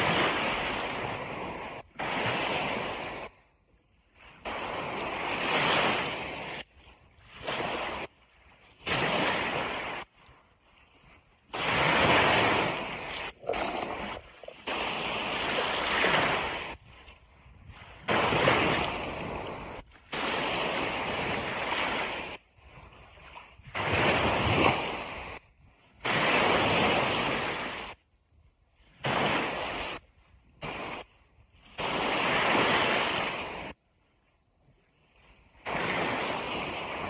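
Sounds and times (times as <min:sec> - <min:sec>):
ocean waves rushing on beach: 0:11.6 - 0:16.8.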